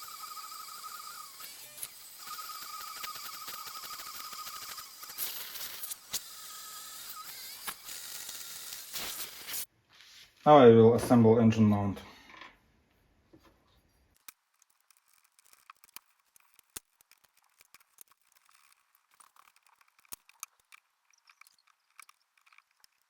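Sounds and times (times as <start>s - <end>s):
small parts clicking and tapping: 0.0s - 9.6s, 14.1s - 23.0s.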